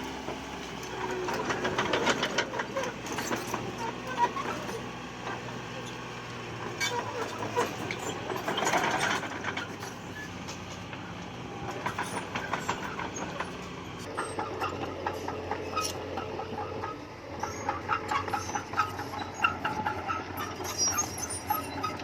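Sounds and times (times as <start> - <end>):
diesel engine hum: 0.0 - 22.0
steel crawler tracks clanking: 0.0 - 22.0.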